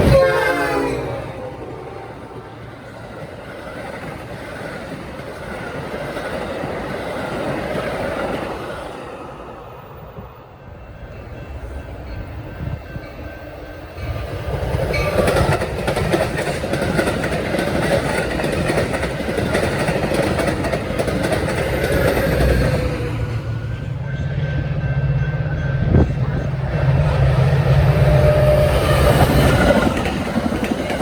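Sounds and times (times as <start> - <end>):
train passing on rails: 0.0 - 31.0
wheels clicking over rail joints: 14.1 - 23.3, 27.7 - 31.0.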